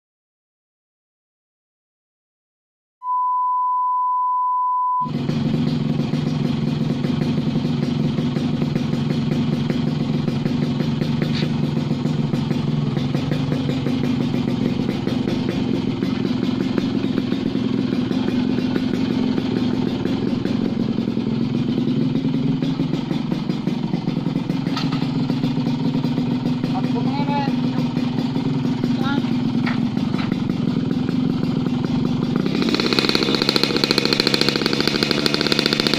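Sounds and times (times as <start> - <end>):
steady beep: 3.0 - 5.1
two-stroke motorcycle engine running: 5.1 - 35.9.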